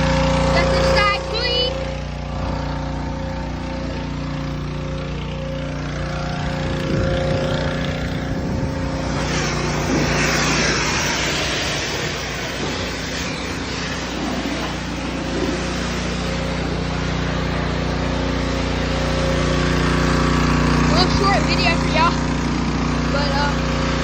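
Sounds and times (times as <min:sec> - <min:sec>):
pressure washer engine running: 0:00.0 - 0:24.0
water spray hissing on metal: 0:09.0 - 0:21.3.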